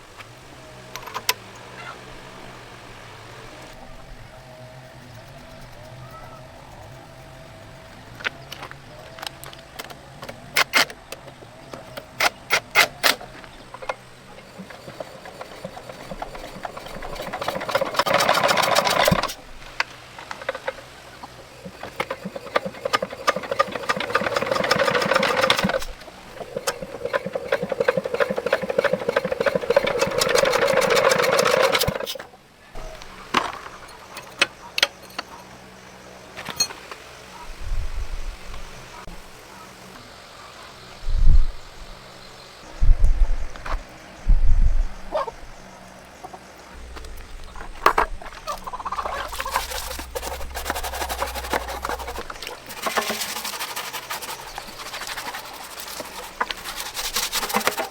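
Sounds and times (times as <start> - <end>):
rapid mechanical rattling: 0.7 - 32.3, 46.7 - 57.9.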